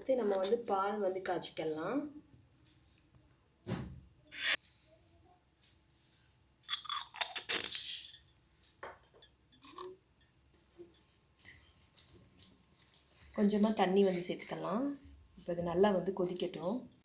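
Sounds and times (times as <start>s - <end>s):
miniature cookware clinking: 8.0s - 11.1s.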